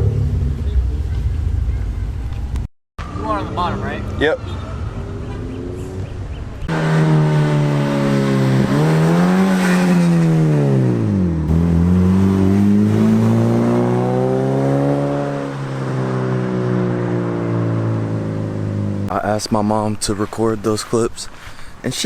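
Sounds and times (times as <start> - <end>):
car engine starting: 5.0 - 19.1.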